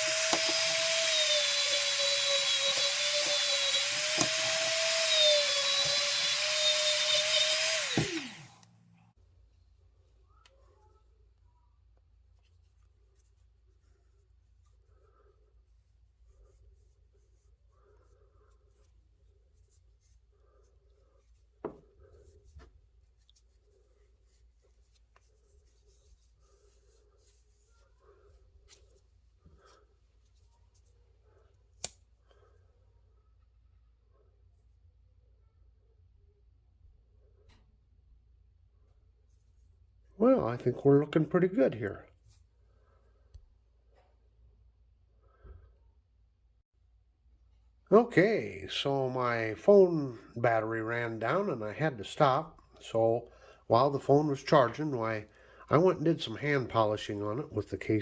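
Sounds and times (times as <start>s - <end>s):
rotary tool whining: 0.0s - 8.9s.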